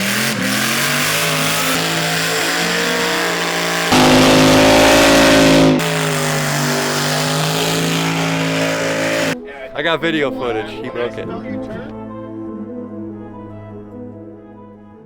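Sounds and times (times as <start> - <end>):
car engine at high revs: 0.0 - 9.4.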